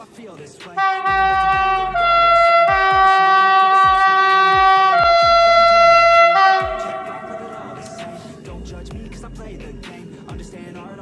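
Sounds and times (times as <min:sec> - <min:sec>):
hip-hop beat with kick drums: 0:00.0 - 0:11.0
two-tone train air horn: 0:00.8 - 0:08.4.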